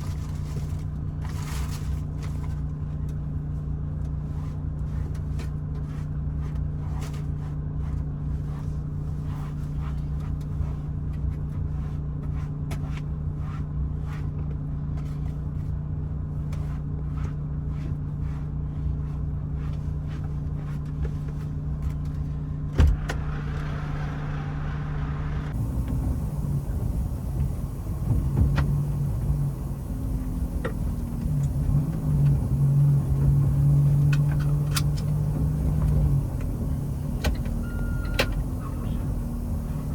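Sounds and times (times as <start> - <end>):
truck engine running: 21.2 - 39.9.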